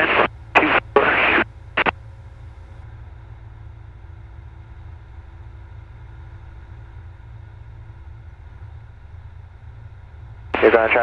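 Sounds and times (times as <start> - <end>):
airplane engine drone: 0.0 - 11.0.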